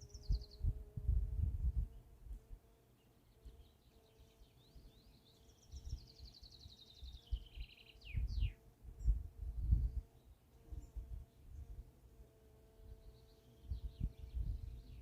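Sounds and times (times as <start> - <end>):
songbird trilling: 3.4 - 8.6.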